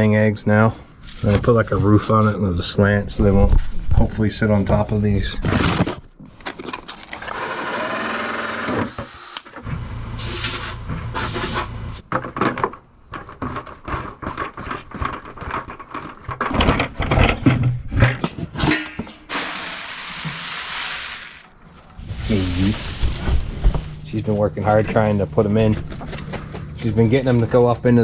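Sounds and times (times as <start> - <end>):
small power tool running: 7.3 - 10.0.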